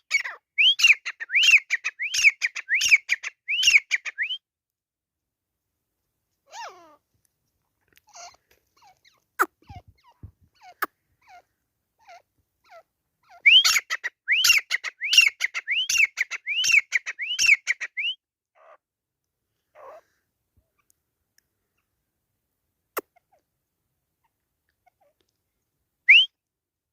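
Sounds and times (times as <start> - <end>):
francolin calling: 0.1 - 4.4, 13.2 - 18.8
high whistled bird notes: 0.6 - 4.4, 13.4 - 18.2, 26.1 - 26.3.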